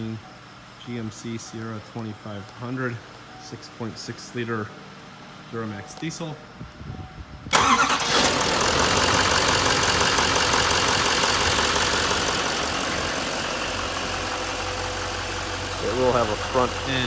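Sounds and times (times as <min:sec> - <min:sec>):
diesel truck engine idling: 0:07.5 - 0:17.0.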